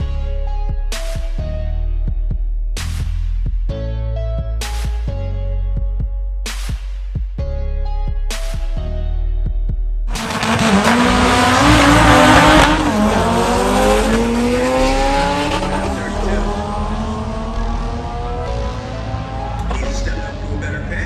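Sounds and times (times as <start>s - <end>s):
loud rushing noise: 10.1s - 18.2s
car engine accelerating: 10.1s - 21.0s.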